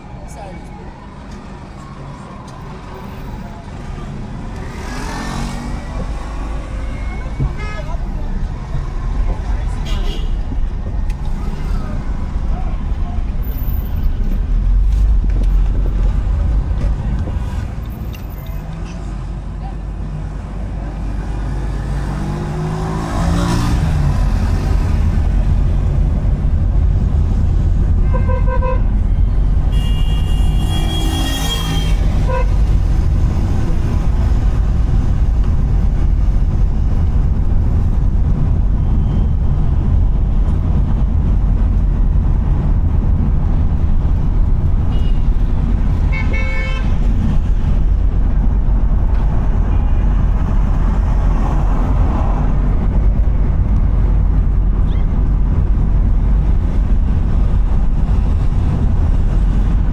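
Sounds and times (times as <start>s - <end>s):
car driving rumble: 0.0s - 59.9s
vehicle horns honking: 6.8s - 8.1s, 9.7s - 10.5s, 28.0s - 29.1s, 29.7s - 32.8s, 44.9s - 45.4s, 46.1s - 47.0s.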